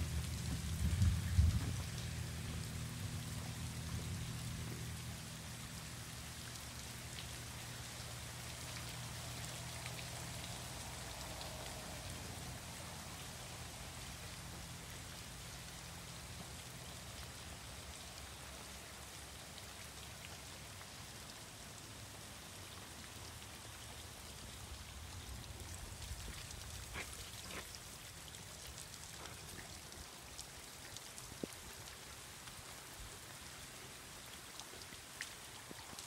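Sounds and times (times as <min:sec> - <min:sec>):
low hum: 0:00.0 - 0:06.6
rain on wet ground: 0:00.0 - 0:36.0.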